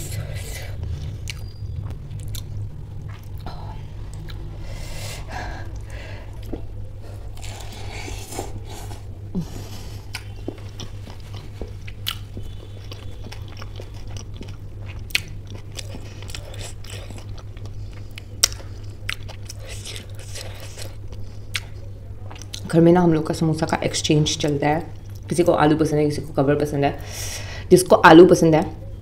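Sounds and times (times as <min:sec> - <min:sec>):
low hum: 0:00.0 - 0:27.7
chewing and biting: 0:01.0 - 0:04.5, 0:09.9 - 0:22.7.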